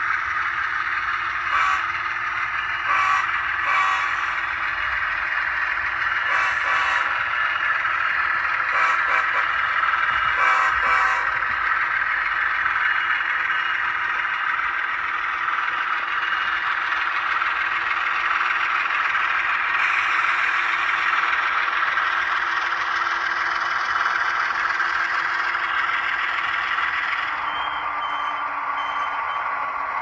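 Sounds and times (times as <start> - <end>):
diesel locomotive sound from small speaker: 0.0 - 30.0
traction motor howl: 0.1 - 13.5.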